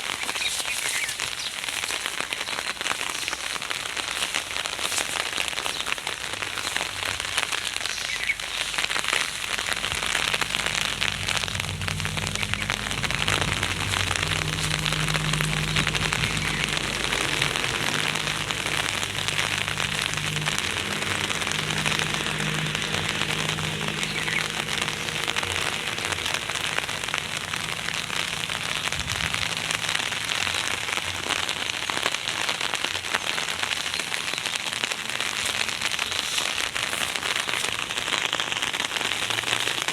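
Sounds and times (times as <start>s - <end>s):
heavy rain on hard surface: 0.0s - 39.9s
low steady hum: 9.0s - 30.9s.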